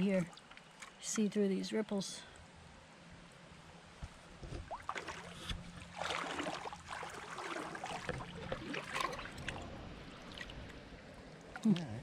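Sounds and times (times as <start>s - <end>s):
creek water splashing: 4.5s - 12.0s.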